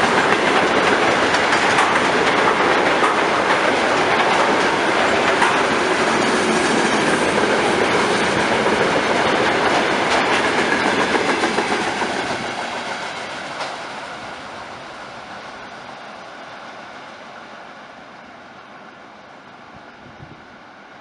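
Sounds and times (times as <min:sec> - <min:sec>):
wheels clicking over rail joints: 0:00.0 - 0:13.9
freight train running past: 0:00.0 - 0:21.0.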